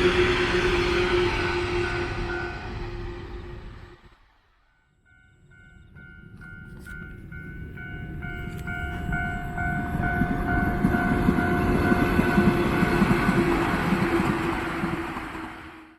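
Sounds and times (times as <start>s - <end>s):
pulsing bell-like tone: 0.0s - 4.0s, 4.8s - 14.6s
electric train rumbling: 0.0s - 15.9s.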